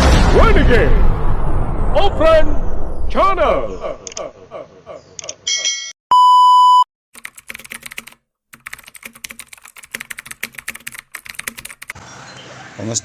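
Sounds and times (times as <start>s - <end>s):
loud steady beep: 6.1s - 6.9s
rapid keyboard typing: 7.2s - 12.0s.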